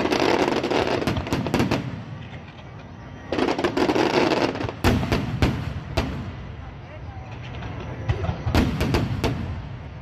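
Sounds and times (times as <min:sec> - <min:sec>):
fireworks crackling: 0:00.0 - 0:10.0
firework booms: 0:03.3 - 0:06.5, 0:08.0 - 0:10.0.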